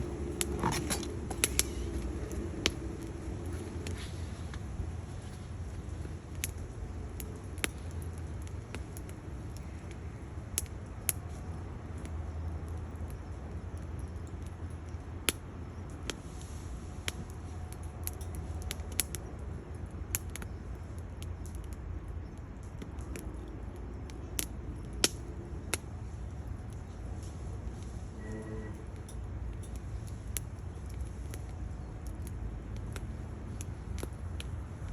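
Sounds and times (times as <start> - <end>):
fire low rumble: 0.0 - 34.9
wood fire crackling: 0.0 - 34.9.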